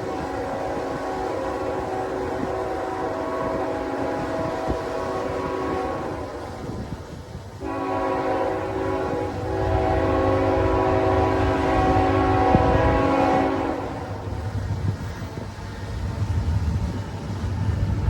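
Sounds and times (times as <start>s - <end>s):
locomotive air horn blasts: 0.0s - 6.9s, 7.6s - 14.5s
locomotive engine rumble: 0.0s - 18.0s.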